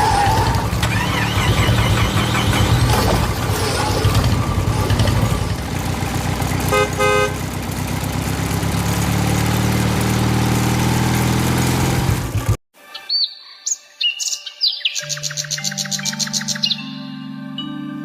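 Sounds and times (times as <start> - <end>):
tractor engine running: 0.0 - 12.6
short horn beeps: 1.0 - 3.3, 6.7 - 7.5.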